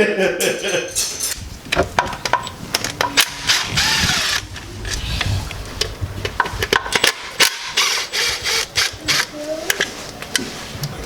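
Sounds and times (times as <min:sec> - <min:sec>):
tools clicking and knocking: 0:06.2 - 0:09.9.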